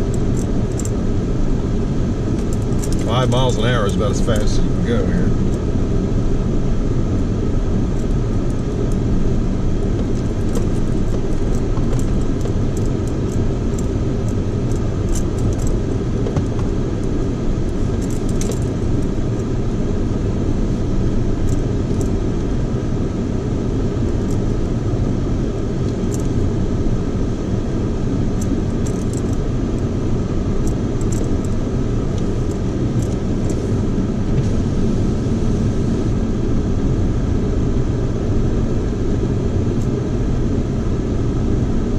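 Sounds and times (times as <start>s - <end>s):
engine and road rumble: 0.0s - 41.9s
clicks and rattles: 17.9s - 18.7s, 28.4s - 29.4s.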